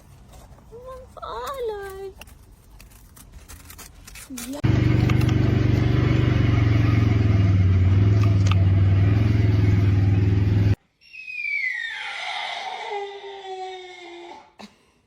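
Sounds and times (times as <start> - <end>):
loud motor drone: 4.6 - 10.8.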